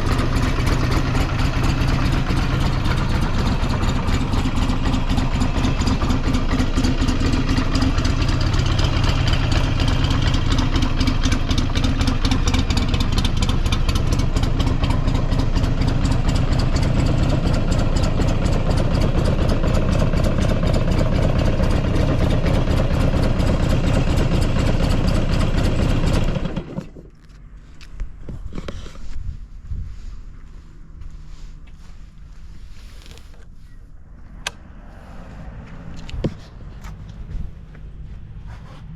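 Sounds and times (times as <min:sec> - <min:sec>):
motorcycle engine idling: 0:00.0 - 0:27.0.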